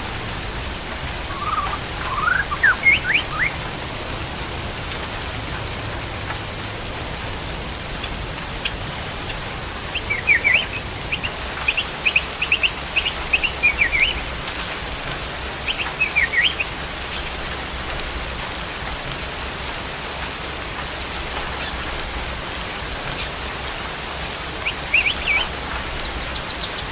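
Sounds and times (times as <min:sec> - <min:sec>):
steady rain-like hiss: 0:00.0 - 0:26.9
songbird chirping: 0:01.3 - 0:03.6, 0:08.0 - 0:14.9, 0:15.5 - 0:17.4, 0:24.6 - 0:26.9.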